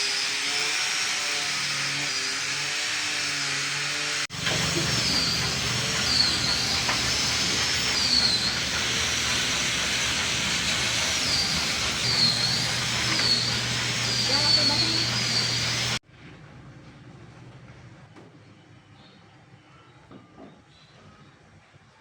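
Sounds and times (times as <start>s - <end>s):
power tool hissing: 0.0s - 16.0s.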